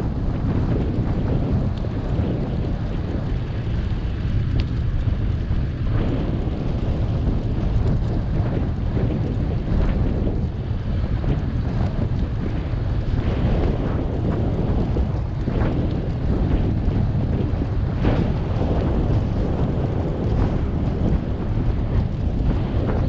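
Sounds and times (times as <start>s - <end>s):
faint ticks and rattles: 0.0s - 23.0s
wind buffeting microphone: 0.0s - 23.0s.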